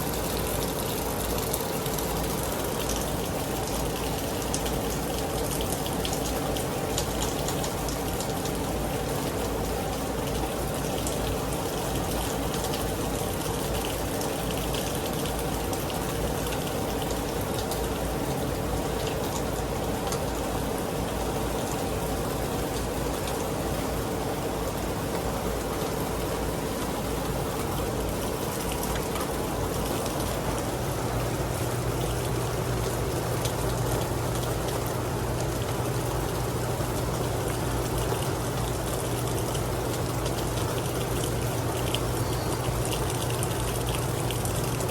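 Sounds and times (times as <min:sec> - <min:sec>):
heavy rain falling: 0:00.0 - 0:44.9
low steady hum: 0:00.0 - 0:44.9.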